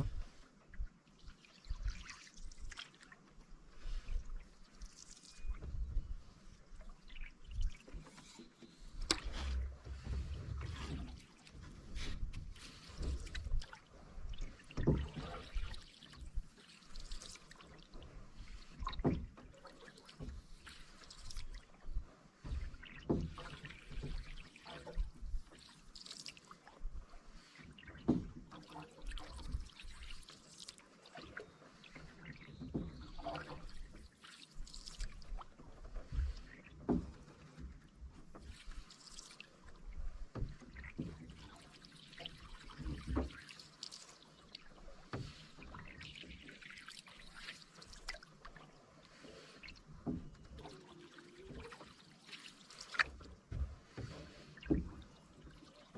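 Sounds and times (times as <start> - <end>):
paddle splashing in water: 0.0 - 55.9.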